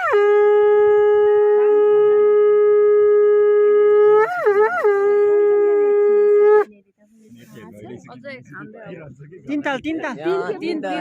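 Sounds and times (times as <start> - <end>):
conch shell blown: 0.0 - 6.7.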